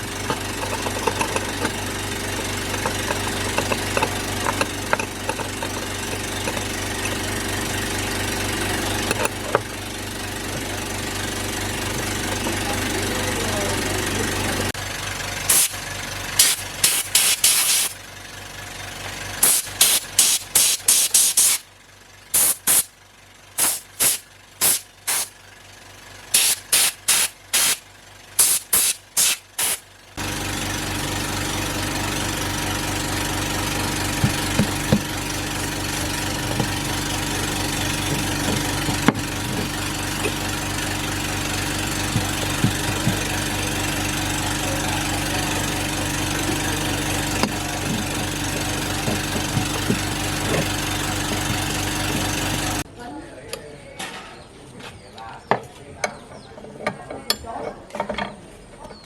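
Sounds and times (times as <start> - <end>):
steady motor hum: 0.0 - 52.9
hissing spray bursts: 15.5 - 15.8, 16.4 - 18.0, 19.4 - 21.6, 22.3 - 22.9, 23.6 - 25.3, 26.3 - 27.8, 28.4 - 29.8.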